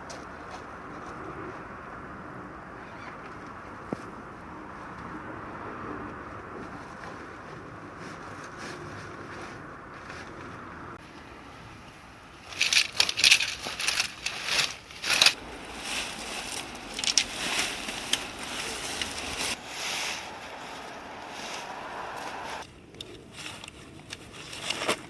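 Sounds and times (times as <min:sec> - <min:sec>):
wind noise: 0:15.1 - 0:24.5.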